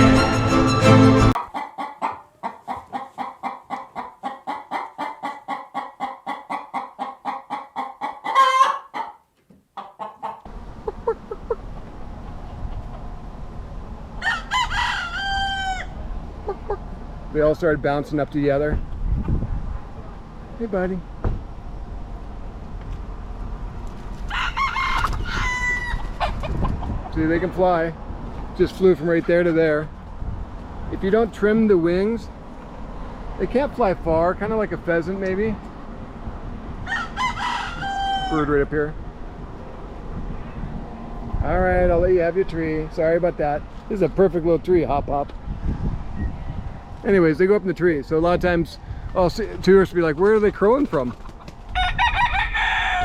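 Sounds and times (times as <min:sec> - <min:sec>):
chicken squawk: 0:00.0 - 0:11.7, 0:14.2 - 0:16.9, 0:24.2 - 0:27.1, 0:36.8 - 0:38.6, 0:51.0 - 0:53.0
chicken clucking: 0:00.0 - 0:13.2, 0:14.6 - 0:17.0, 0:23.9 - 0:27.3, 0:50.2 - 0:51.7
rooster crowing: 0:08.2 - 0:09.2, 0:14.2 - 0:16.0, 0:24.3 - 0:26.4, 0:36.8 - 0:38.5, 0:51.7 - 0:53.0.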